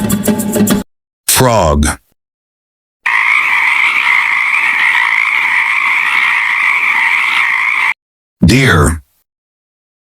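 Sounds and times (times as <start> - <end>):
frog trilling: 3.1 - 8.0.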